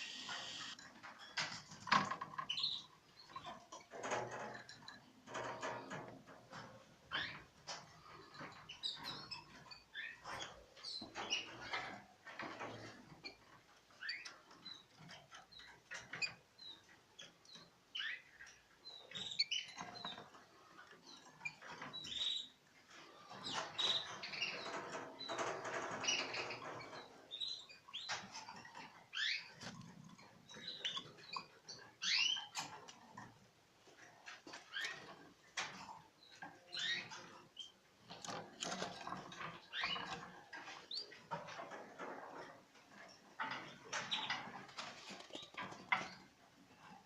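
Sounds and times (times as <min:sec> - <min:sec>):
young birds chirping: 0:00.0 - 0:00.8.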